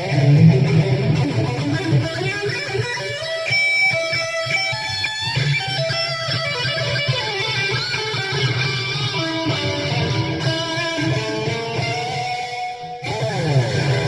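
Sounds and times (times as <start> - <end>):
guitar notes ringing: 0.0 - 14.0.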